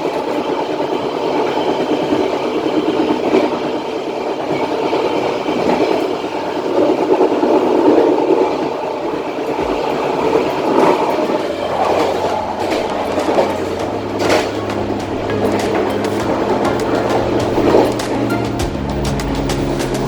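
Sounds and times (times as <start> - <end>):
clicks of wheels on track: 0.0 - 20.0
train wheels rumbling on rails: 0.0 - 20.0.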